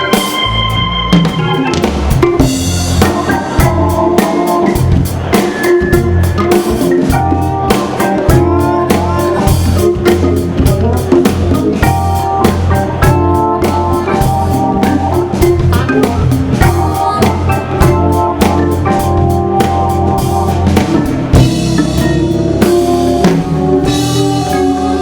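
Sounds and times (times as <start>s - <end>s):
drum groove: 0.0s - 25.0s
live soul-jazz band: 0.0s - 25.0s
organ holding chords: 0.0s - 25.0s.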